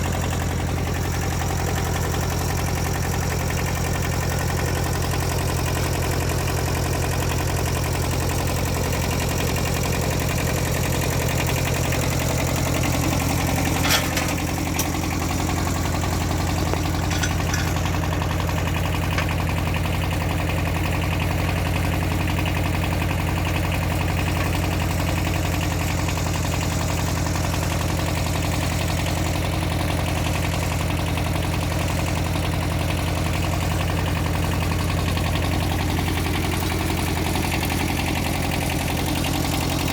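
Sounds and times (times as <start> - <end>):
engine idling: 0.0 - 39.9
sharp metal clank: 13.8 - 15.0, 17.0 - 18.0.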